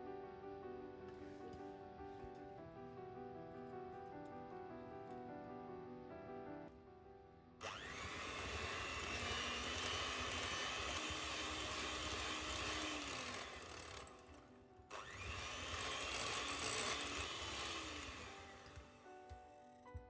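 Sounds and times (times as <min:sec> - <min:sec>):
small electric motor spinning: 0:07.6 - 0:19.7.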